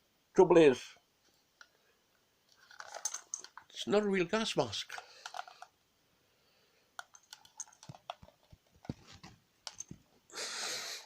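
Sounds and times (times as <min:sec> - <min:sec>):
rustling hiss: 0:10.3 - 0:11.0.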